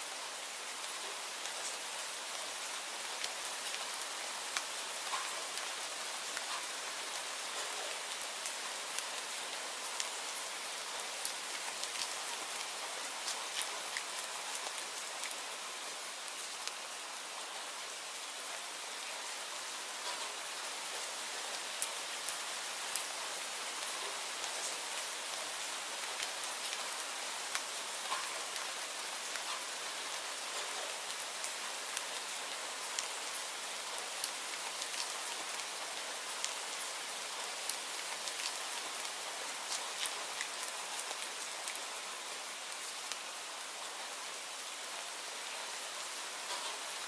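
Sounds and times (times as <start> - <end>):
steady rainfall hiss: 0.0 - 47.0
raindrops ticking on surface: 0.7 - 47.0.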